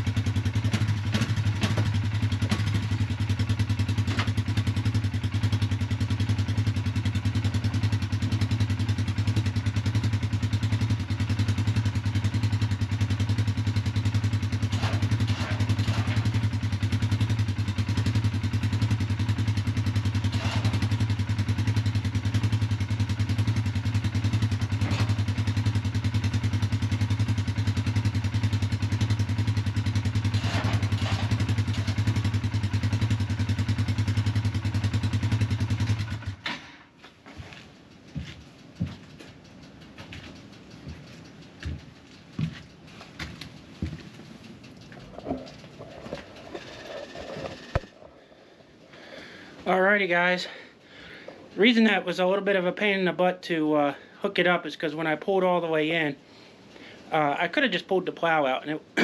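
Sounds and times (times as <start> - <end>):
four-wheeler engine idling: 0.0 - 59.0
metallic clanks: 30.2 - 32.2.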